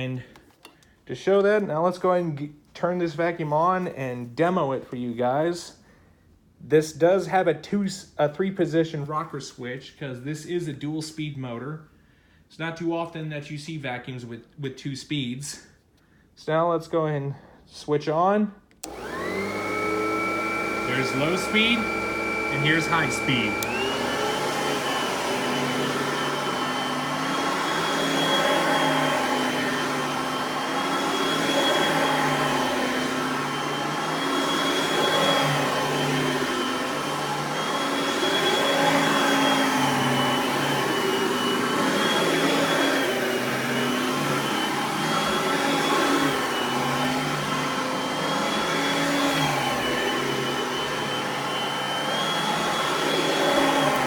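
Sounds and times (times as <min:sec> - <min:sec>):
upright vacuum motor whining: 0:18.8 - 0:54.0.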